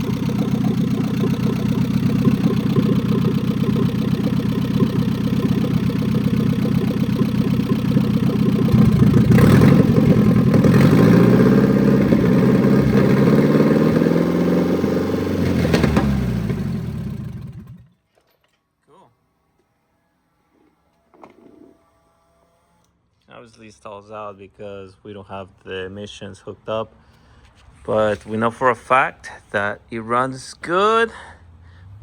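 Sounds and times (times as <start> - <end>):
car engine running unevenly: 0.0 - 17.9.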